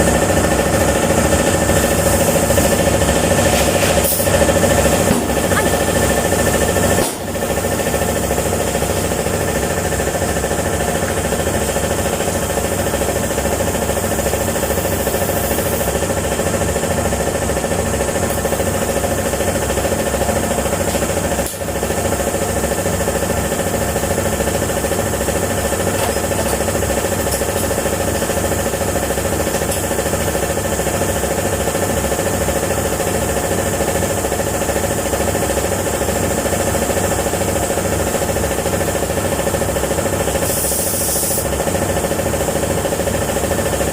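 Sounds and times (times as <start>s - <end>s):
machine hum: 0.0s - 16.1s
machine pulsing rattle: 0.0s - 43.9s.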